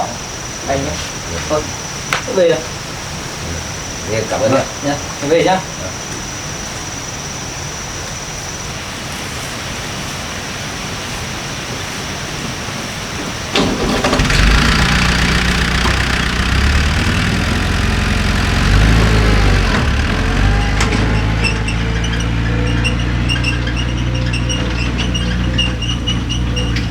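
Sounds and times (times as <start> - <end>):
vehicle engine starting and revving: 13.5 - 26.9.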